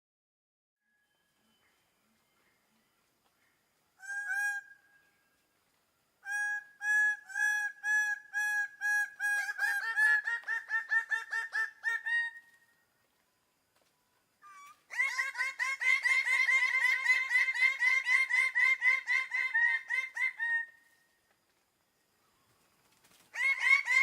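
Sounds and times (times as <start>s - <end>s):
bird of prey calling: 3.4s - 5.2s, 6.2s - 12.8s, 14.4s - 21.0s, 23.3s - 24.0s.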